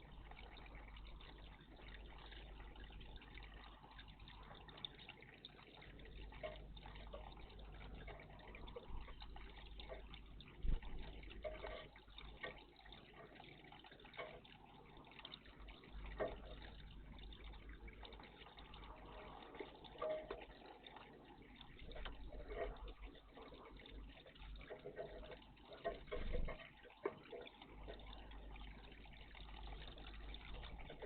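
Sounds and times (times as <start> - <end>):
water splashing and dripping: 0.0 - 31.0.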